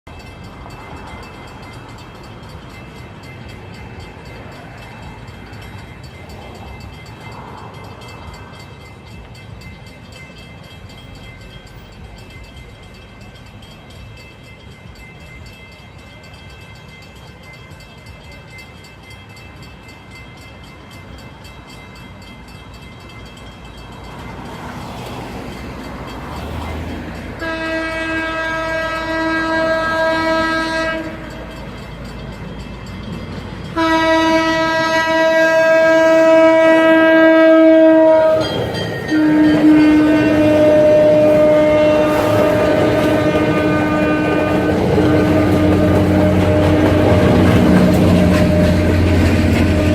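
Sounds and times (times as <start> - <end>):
approaching diesel train: 0.0 - 49.9
train horn blast: 27.4 - 31.3, 33.7 - 49.9.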